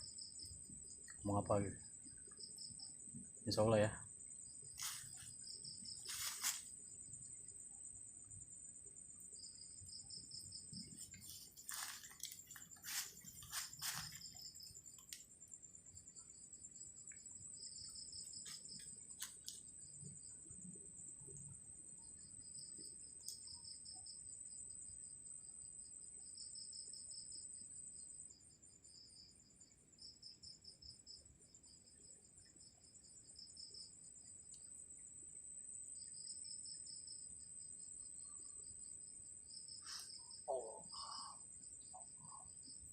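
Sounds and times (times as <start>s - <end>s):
lower insect trill bursts: 0.0s - 19.8s, 39.3s - 42.8s
high-pitched insect trill: 0.0s - 42.9s.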